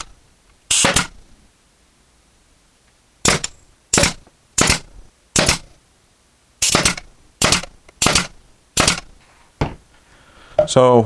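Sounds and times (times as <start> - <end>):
pneumatic nailer firing nails: 0.0 - 1.2, 3.2 - 5.8, 6.6 - 9.2
air hiss: 0.7 - 1.2, 6.6 - 9.0.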